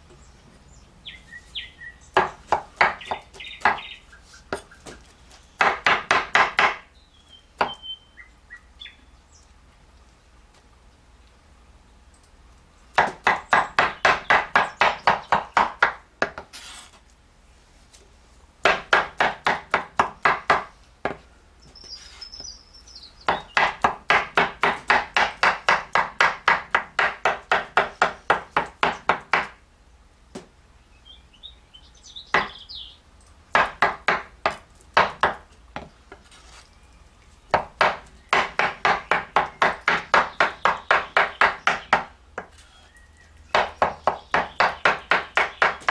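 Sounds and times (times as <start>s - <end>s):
faint bird chirps: 7.0s - 9.5s, 21.6s - 23.6s, 42.6s - 45.7s.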